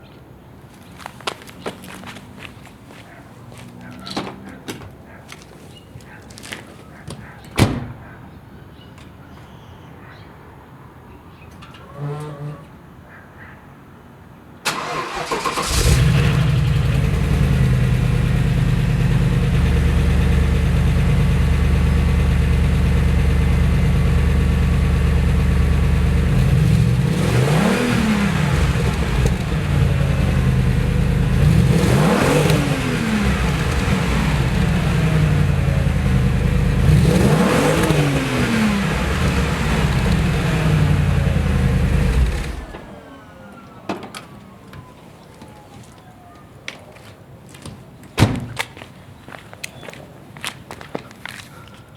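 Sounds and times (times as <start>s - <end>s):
car engine starting: 14.6s - 44.6s
car engine revving: 14.7s - 42.8s
car engine idling: 14.7s - 43.0s.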